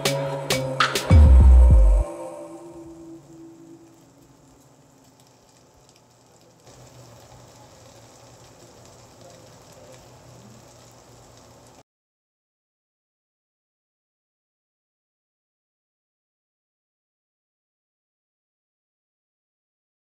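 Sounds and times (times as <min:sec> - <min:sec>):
meat sizzling in frying pan: 0:04.9 - 0:11.8.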